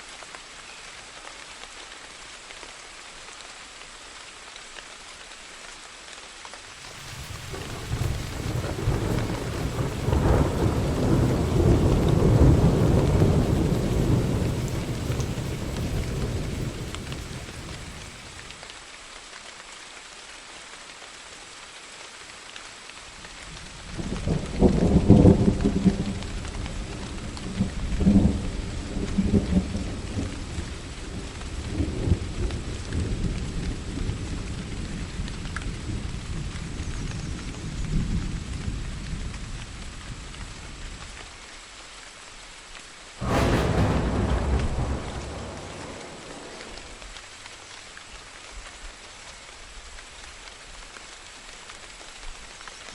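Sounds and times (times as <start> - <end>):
rain falling: 0.0 - 52.9
thunder cracks: 6.8 - 18.6, 43.2 - 47.2
thunder rumbling: 6.8 - 18.6, 43.2 - 47.2.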